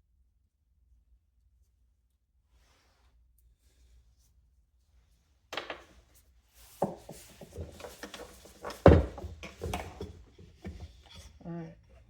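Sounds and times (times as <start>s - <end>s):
fan parts knocking and scraping: 6.7s - 12.0s.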